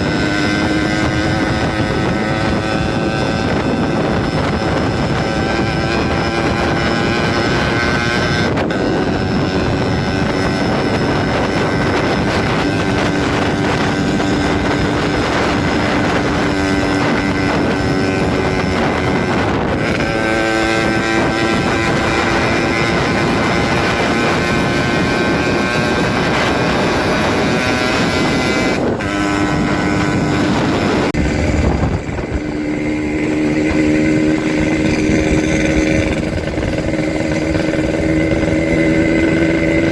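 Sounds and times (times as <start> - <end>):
loud motorcycle engine revving: 0.0 - 39.9
wind on microphone: 0.0 - 39.9.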